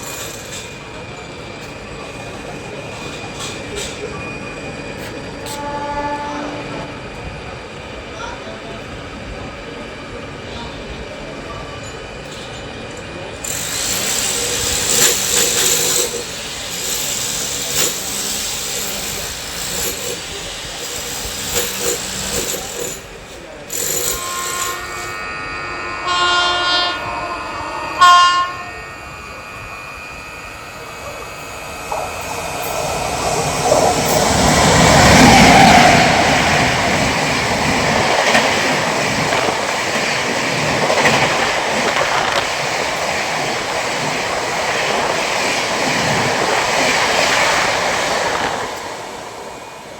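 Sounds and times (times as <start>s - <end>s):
train wheels rumbling and clattering: 0.0s - 25.2s, 30.0s - 49.9s
train air horn: 5.4s - 7.2s, 23.8s - 30.6s.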